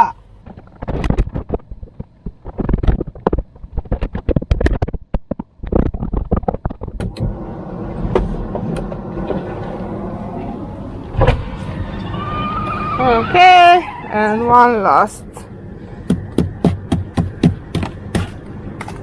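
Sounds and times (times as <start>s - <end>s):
engine hum: 6.9s - 19.0s.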